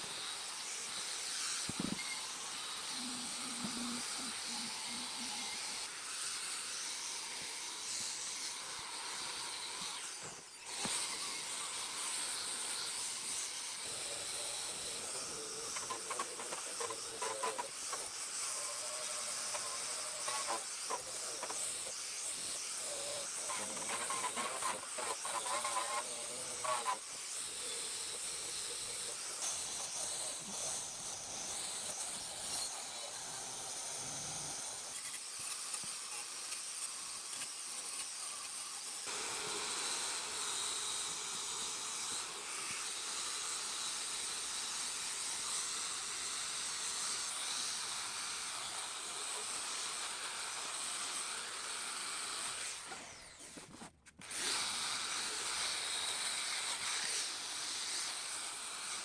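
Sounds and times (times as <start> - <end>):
steady hissing noise: 0.0 - 44.3.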